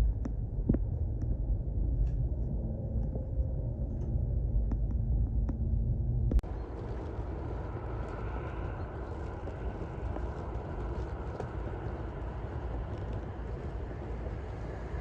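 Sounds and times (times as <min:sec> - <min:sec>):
train rumble and hiss: 0:06.4 - 0:15.0.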